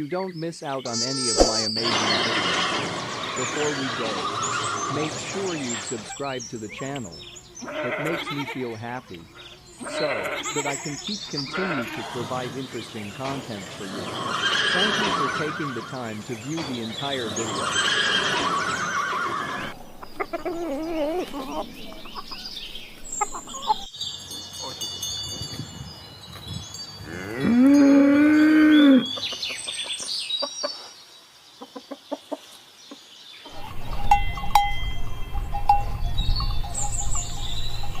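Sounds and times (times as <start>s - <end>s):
cow mooing: 9.8s - 12.3s, 14.1s - 15.9s, 27.0s - 29.0s
chicken clucking: 20.0s - 22.5s, 31.6s - 32.5s
cowbell clinking: 23.2s - 25.8s, 33.6s - 38.0s.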